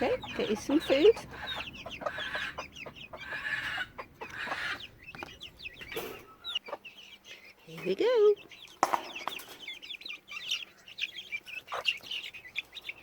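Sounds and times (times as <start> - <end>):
chickens peeping and clucking: 0.0 - 13.0.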